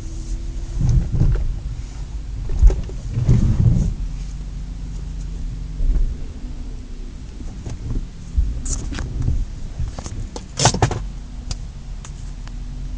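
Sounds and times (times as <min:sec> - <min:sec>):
car engine idling: 0:00.0 - 0:12.9
sharp clicks and clunks: 0:08.6 - 0:12.6.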